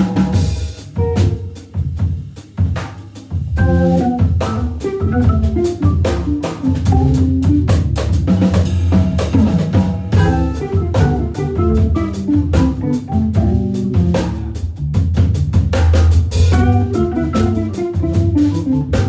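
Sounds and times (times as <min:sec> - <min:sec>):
organ chords: 0:00.0 - 0:01.7, 0:03.6 - 0:14.6, 0:16.5 - 0:19.0
drum kit: 0:00.0 - 0:19.0
guitar: 0:01.0 - 0:01.6, 0:03.6 - 0:07.9, 0:10.2 - 0:14.4, 0:16.5 - 0:19.0.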